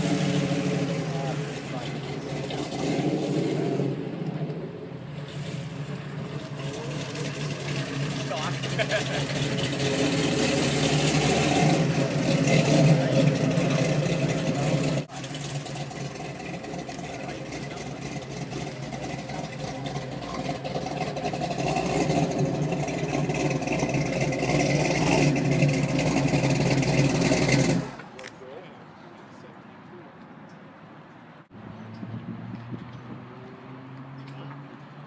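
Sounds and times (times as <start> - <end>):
car engine running: 0.0 - 28.0
people talking: 1.0 - 2.4, 6.6 - 7.5, 8.1 - 9.3, 12.6 - 15.3, 16.9 - 20.5, 24.8 - 25.5, 28.0 - 30.2.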